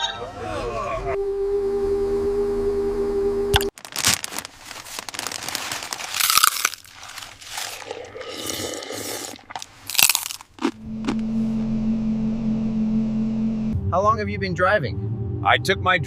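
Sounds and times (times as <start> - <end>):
crunching and scraping: 3.6 - 11.3.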